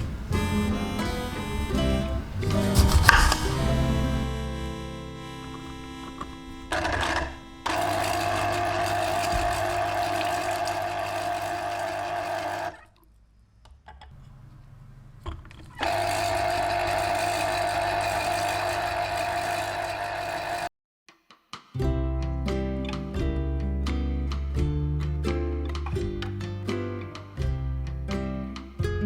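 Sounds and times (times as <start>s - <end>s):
small electric motor whining: 5.5s - 12.9s, 15.8s - 20.7s.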